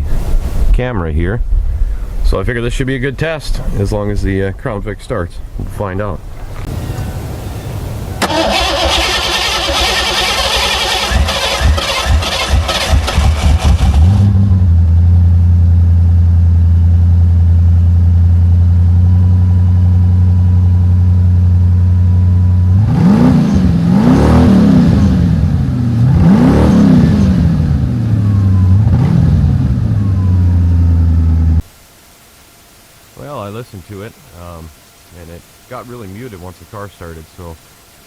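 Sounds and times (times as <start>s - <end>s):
car engine starting and idling: 5.4s - 31.6s
engine revving: 8.2s - 15.4s, 22.5s - 31.6s.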